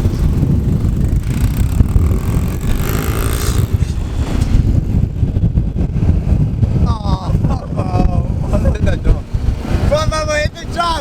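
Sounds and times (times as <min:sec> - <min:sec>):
vehicle engine running: 0:00.0 - 0:04.4
wind buffeting microphone: 0:00.0 - 0:11.0.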